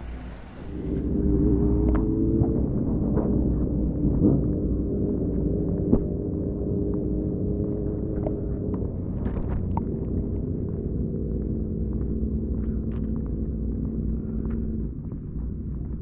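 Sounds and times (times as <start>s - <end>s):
motorcycle engine running: 0.7s - 16.0s.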